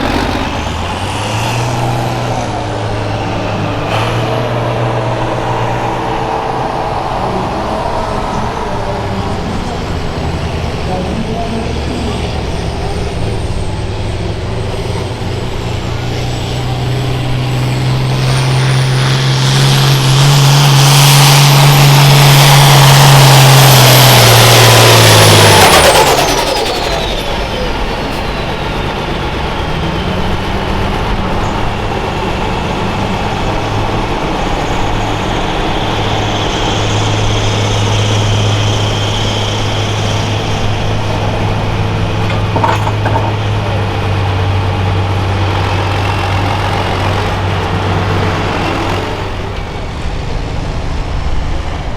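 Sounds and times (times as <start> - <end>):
high turbo whine: 0.0 - 51.9
tractor diesel engine running hard: 0.0 - 51.9.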